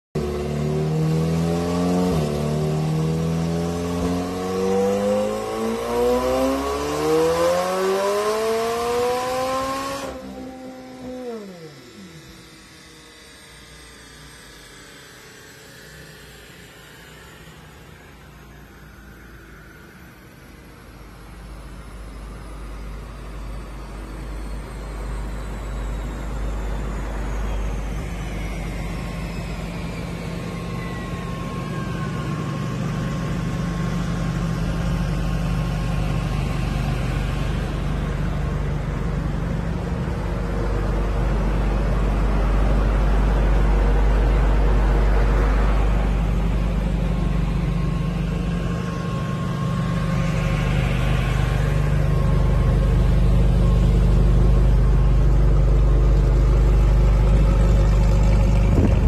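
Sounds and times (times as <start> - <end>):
faint high whistles sliding down: 4.6 - 58.5
car engine idling: 19.8 - 59.0.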